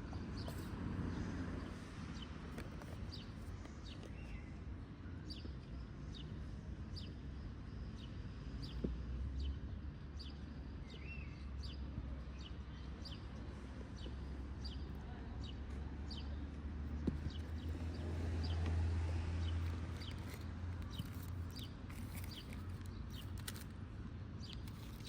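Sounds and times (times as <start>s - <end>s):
small bird chirping: 19.5s - 23.7s.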